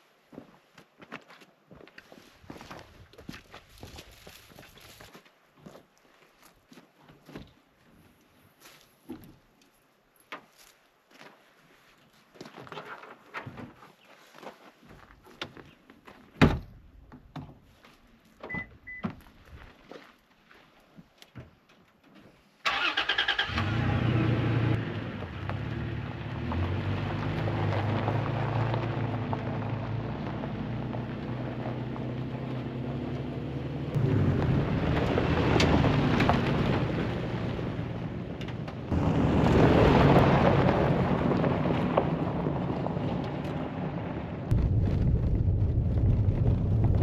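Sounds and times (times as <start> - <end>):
truck engine starting and running: 22.6 - 47.0.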